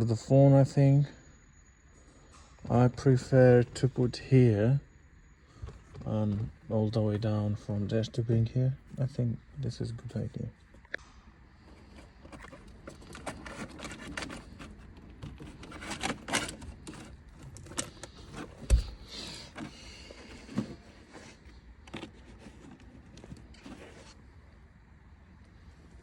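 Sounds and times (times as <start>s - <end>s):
plastic trim clicks and rustles: 11.8s - 21.2s.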